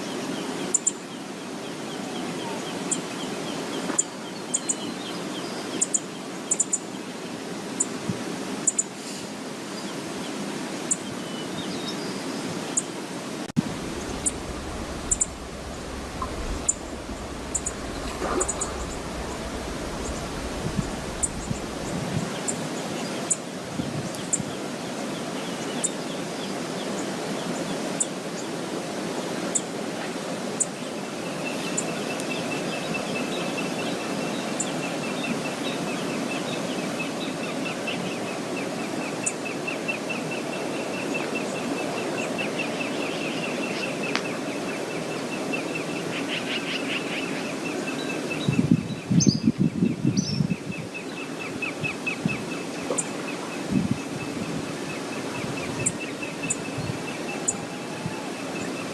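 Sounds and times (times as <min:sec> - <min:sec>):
waterfall rushing: 0:13.3 - 0:23.8
bird trilling: 0:13.8 - 0:22.0.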